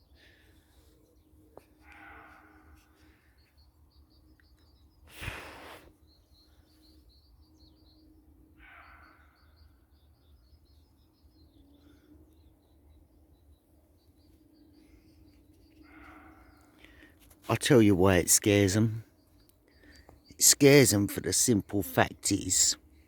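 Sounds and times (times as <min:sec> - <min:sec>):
small birds twittering: 0:00.0 - 0:23.0
deer barking: 0:01.8 - 0:02.8.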